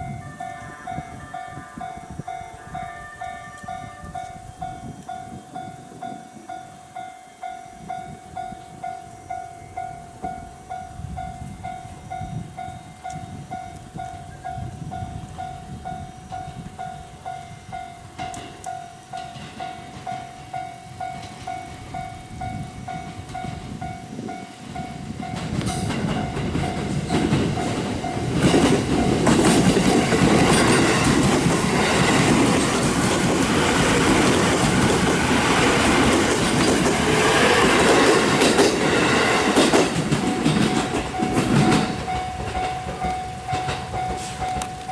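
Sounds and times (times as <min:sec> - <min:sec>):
level crossing warning bell: 0:00.0 - 0:44.9
train wheels clattering over joints: 0:18.1 - 0:21.6, 0:25.2 - 0:44.9.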